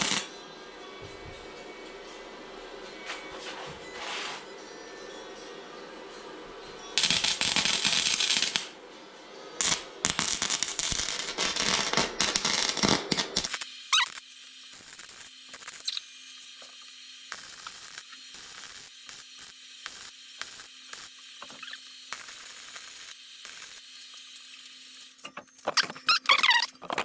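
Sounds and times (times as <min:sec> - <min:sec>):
crackling welding arc: 0:00.0 - 0:00.3, 0:07.0 - 0:08.7, 0:09.6 - 0:26.7.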